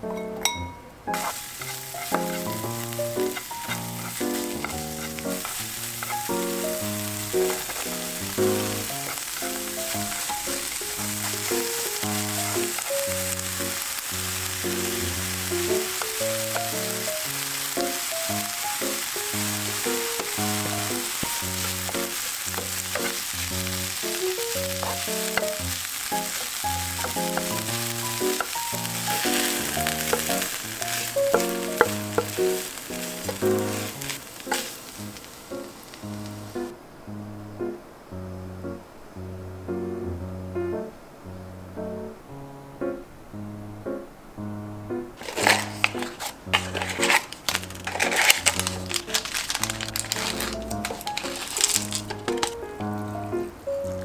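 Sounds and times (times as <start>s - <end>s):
gentle background music: 0.0s - 54.0s
utensils clicking against pan: 1.1s - 6.8s, 7.4s - 13.8s, 17.8s - 23.2s, 24.0s - 34.8s, 45.2s - 52.7s
food sizzling in frying pan: 1.1s - 36.7s, 45.2s - 54.0s.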